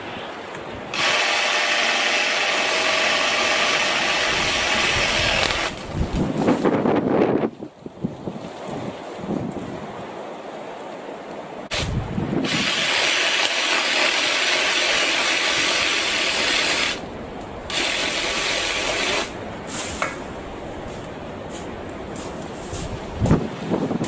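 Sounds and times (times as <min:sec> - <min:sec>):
cordless saw cutting branch: 0:00.9 - 0:06.0, 0:11.7 - 0:17.1, 0:17.7 - 0:19.4.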